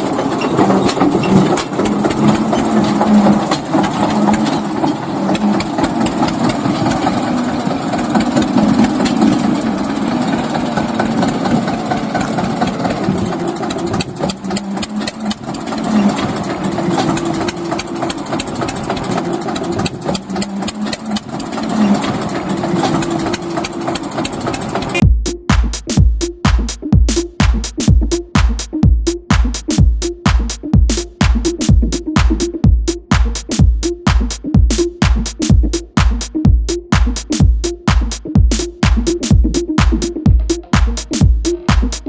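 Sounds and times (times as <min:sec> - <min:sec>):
tractor engine idling: 0:00.0 - 0:42.0
music: 0:25.0 - 0:42.0.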